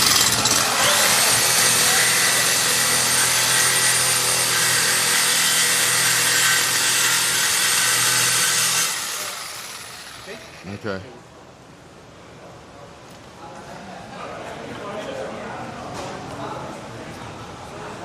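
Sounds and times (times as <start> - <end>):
power tool cutting steel pipe: 0.0 - 10.7.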